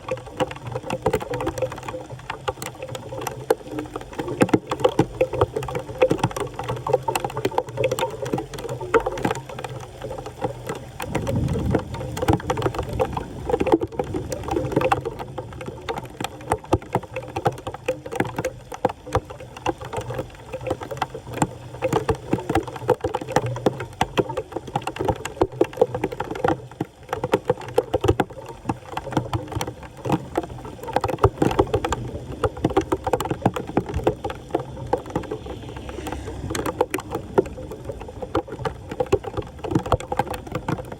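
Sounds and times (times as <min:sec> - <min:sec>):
floodwater splashing: 0:00.0 - 0:40.9
low rumble: 0:11.1 - 0:12.2, 0:34.2 - 0:39.0.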